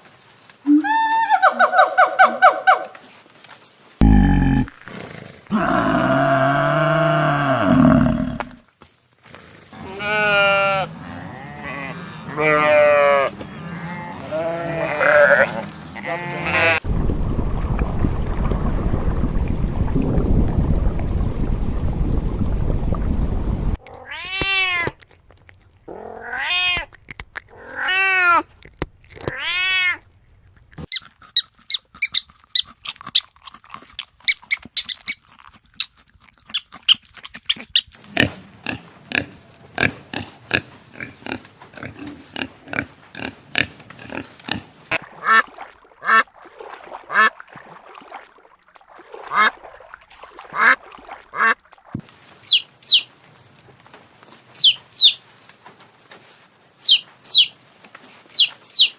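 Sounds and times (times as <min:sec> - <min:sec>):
cat meows: 0:23.9 - 0:24.9, 0:26.0 - 0:26.9, 0:29.3 - 0:30.0.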